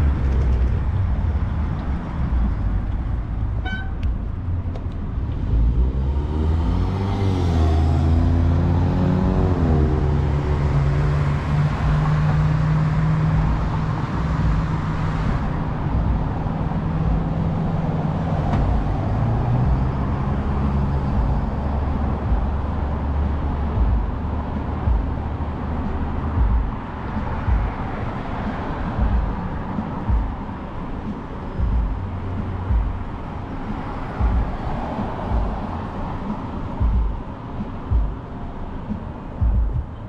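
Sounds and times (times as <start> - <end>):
road traffic: 0.0 - 40.0
steady engine hum: 0.0 - 40.0
engine revving: 5.2 - 38.2.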